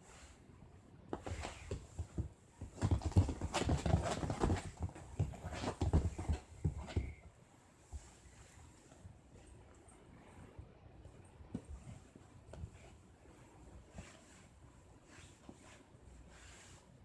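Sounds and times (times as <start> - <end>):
knocking and rustling: 1.2 - 7.2.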